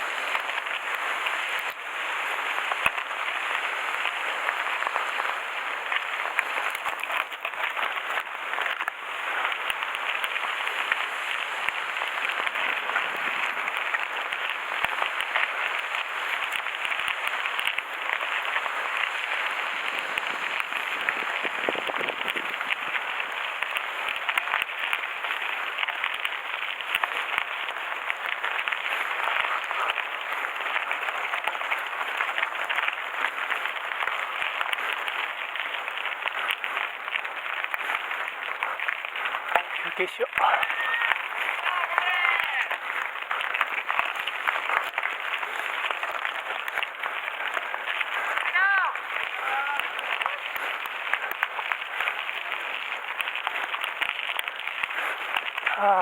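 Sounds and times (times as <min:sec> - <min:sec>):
bike tyres crackling on gravel: 0:00.0 - 0:56.0
bike rattling: 0:12.6 - 0:26.0.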